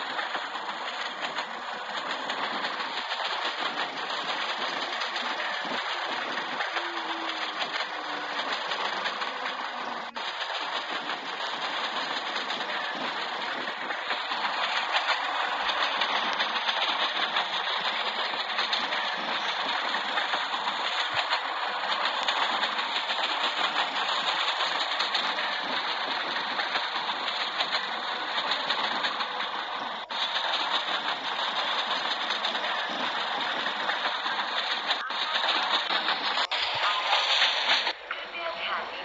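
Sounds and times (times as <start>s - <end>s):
train rushing: 0.0s - 39.0s.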